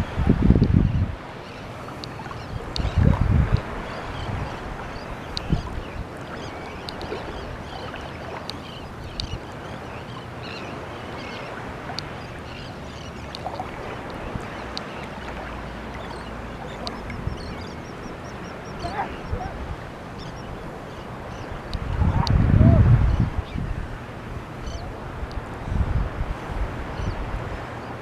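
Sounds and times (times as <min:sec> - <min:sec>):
seabirds calling: 0:00.0 - 0:28.0
water noise: 0:00.0 - 0:28.0
wind: 0:00.0 - 0:28.0.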